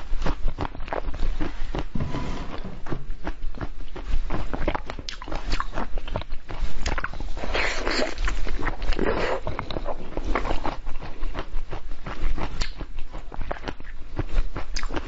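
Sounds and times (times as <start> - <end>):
wet mouth clicks: 3.6 - 14.0.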